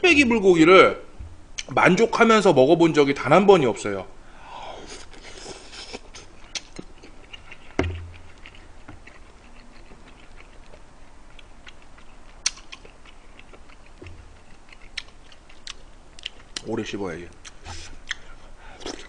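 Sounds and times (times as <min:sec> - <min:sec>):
person chewing food: 0:04.8 - 0:16.7, 0:17.4 - 0:19.0
wet mouth clicks: 0:05.0 - 0:10.8, 0:11.4 - 0:16.7, 0:17.3 - 0:19.0
dull thump: 0:07.8 - 0:08.1.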